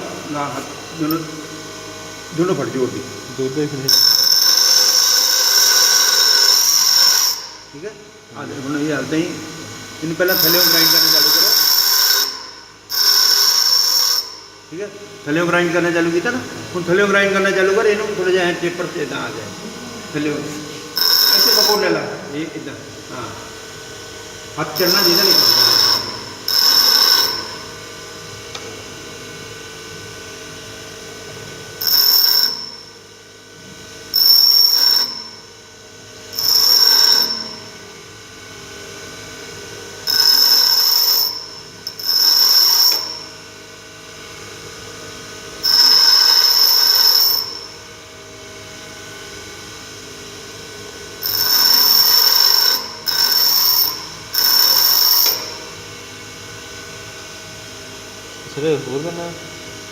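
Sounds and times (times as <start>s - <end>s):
bench grinder wheel running: 0.0s - 29.0s, 31.5s - 35.5s, 36.2s - 38.0s, 39.0s - 43.4s, 45.5s - 47.9s, 51.0s - 56.0s
high-pitched grinding of steel: 3.6s - 7.8s, 10.0s - 14.6s, 15.4s - 23.4s, 24.6s - 28.2s, 34.1s - 35.5s, 36.3s - 37.9s, 40.0s - 43.4s, 45.6s - 47.9s, 51.2s - 55.8s.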